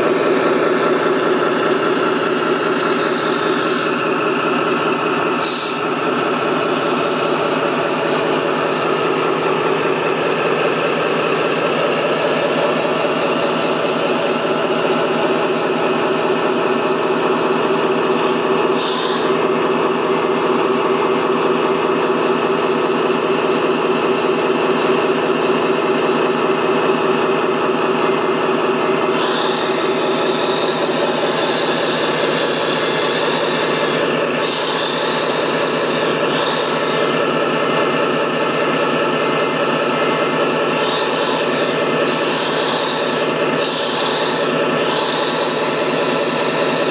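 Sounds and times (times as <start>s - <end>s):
engine-like drone with pulsing: 0.0s - 46.9s.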